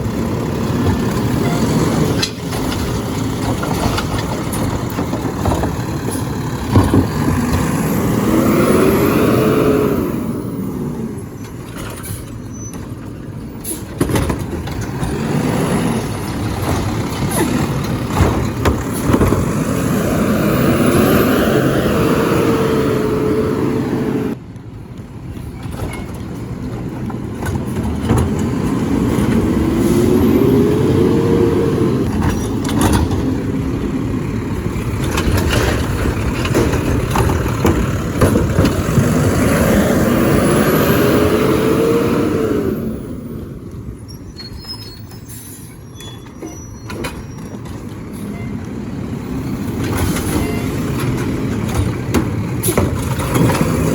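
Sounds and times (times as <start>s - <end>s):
garbage truck engine and hydraulics: 0.0s - 53.9s
knocks and clanks: 0.6s - 8.2s, 11.7s - 20.6s, 25.6s - 29.6s, 32.0s - 33.8s, 34.7s - 39.9s, 49.7s - 53.9s.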